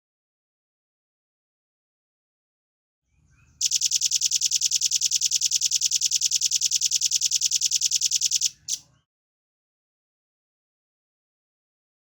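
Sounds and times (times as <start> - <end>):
bird singing high-pitched trill: 3.6 - 8.8.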